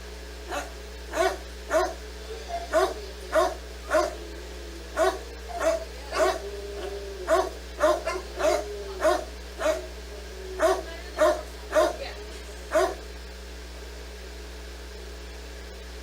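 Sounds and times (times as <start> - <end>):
dog whining: 0.5 - 12.0, 12.7 - 13.0
dog barking: 0.5 - 13.1.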